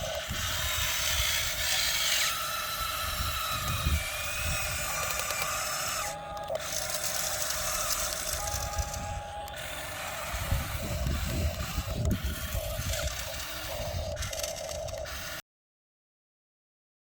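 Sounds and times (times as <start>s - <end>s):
small electric motors whining: 0.0s - 15.4s.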